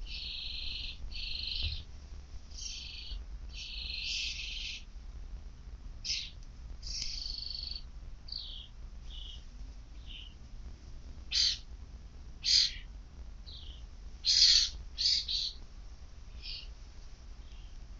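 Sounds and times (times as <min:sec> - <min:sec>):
birds calling harshly: 0:00.0 - 0:01.9, 0:02.5 - 0:04.9, 0:06.0 - 0:09.4, 0:10.0 - 0:10.4, 0:11.3 - 0:11.7, 0:12.4 - 0:12.9, 0:13.5 - 0:15.6, 0:16.3 - 0:16.7.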